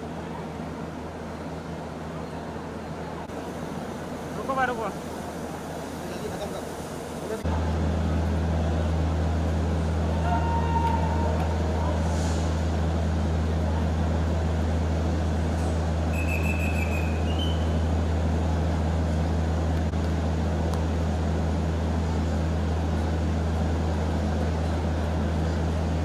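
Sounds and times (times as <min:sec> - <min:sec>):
stationary train drone: 0:00.0 - 0:26.0.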